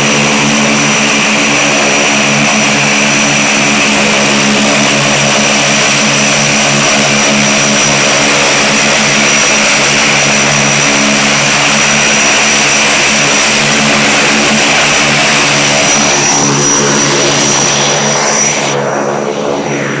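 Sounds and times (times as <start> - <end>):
propeller airplane engine running: 0.0 - 20.0
thin high whine: 13.8 - 20.0.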